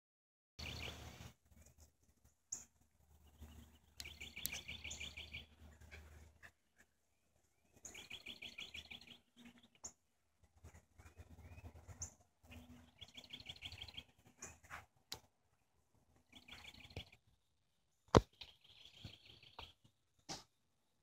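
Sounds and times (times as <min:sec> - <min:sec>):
short high bird chirps: 0:03.6 - 0:05.5.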